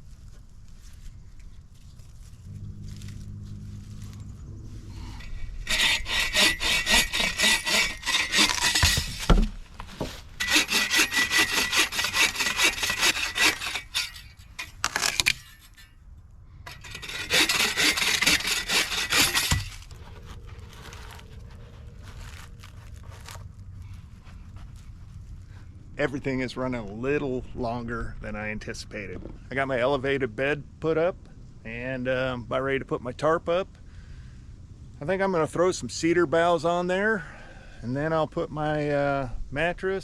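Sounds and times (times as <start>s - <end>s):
hand saw cutting wood: 5.1s - 15.8s, 16.7s - 20.0s.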